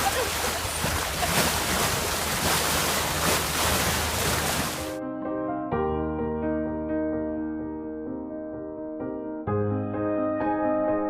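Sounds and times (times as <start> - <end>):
gentle piano notes: 4.9 - 11.0
deep piano chord: 5.0 - 11.0.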